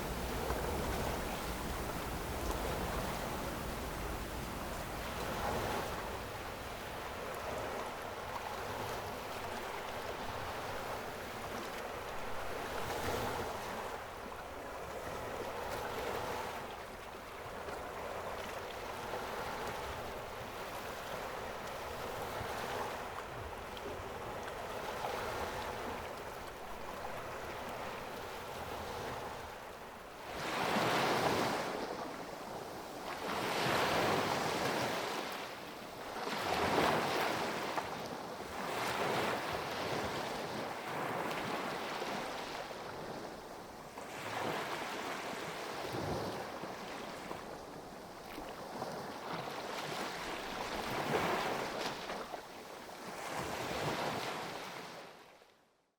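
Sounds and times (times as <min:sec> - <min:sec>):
wind buffeting microphone: 0:00.0 - 0:07.8
sea waves breaking: 0:00.0 - 0:11.0, 0:20.8 - 0:35.5.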